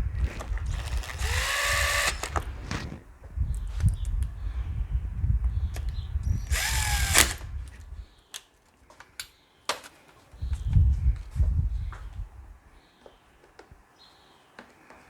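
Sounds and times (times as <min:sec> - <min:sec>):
cordless drill whirring: 0:00.2 - 0:03.0, 0:06.3 - 0:07.8.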